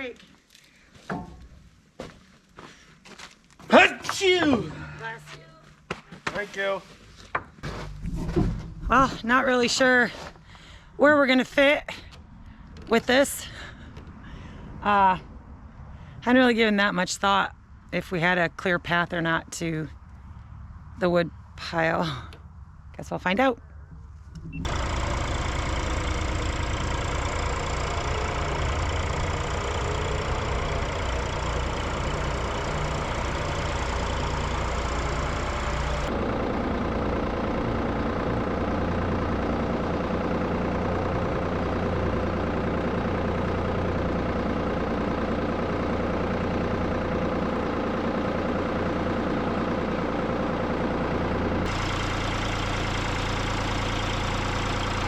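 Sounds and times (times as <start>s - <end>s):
tractor engine running under load: 3.7s - 5.4s, 23.8s - 55.0s.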